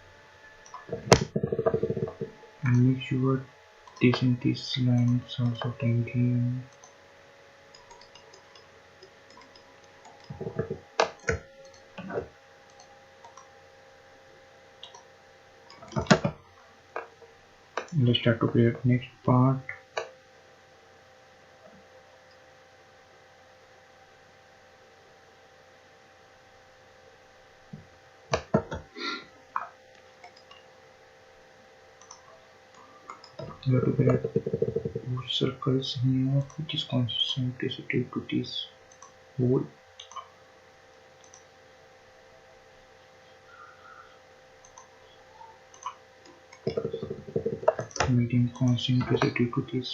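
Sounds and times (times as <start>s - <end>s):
faint electrical hum: 0.0s - 49.9s
computer mouse clicking: 7.7s - 13.5s, 14.8s - 15.1s, 29.6s - 30.7s, 32.0s - 35.0s, 38.9s - 39.2s, 40.0s - 40.3s, 41.2s - 41.5s, 44.6s - 44.9s, 45.7s - 49.4s.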